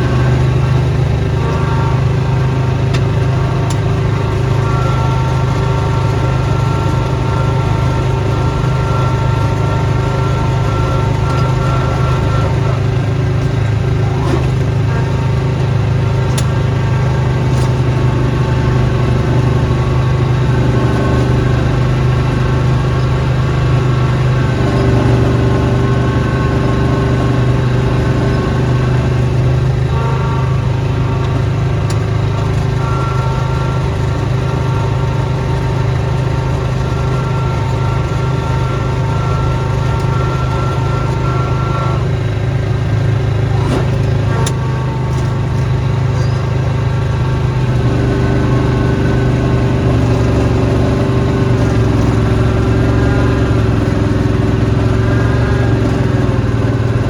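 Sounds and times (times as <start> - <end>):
small petrol engine running: 0.0 - 57.0.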